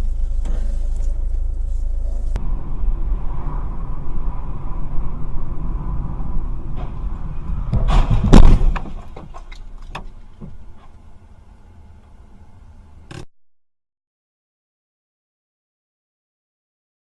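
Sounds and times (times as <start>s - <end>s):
car road rumble: 0.0s - 13.3s
loud bang: 2.4s - 9.4s.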